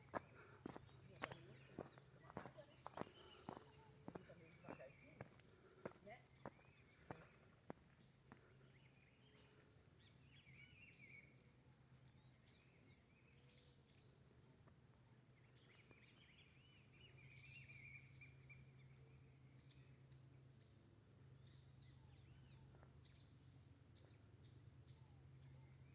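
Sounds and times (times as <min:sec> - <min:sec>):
birds chirping and warbling: 0:00.0 - 0:11.3
high insect trill: 0:00.0 - 0:25.9.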